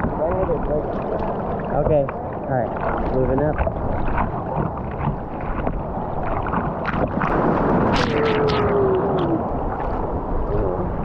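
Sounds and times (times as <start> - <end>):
surf churning and splashing: 0.0 - 11.0
sharp splashes: 2.7 - 10.8.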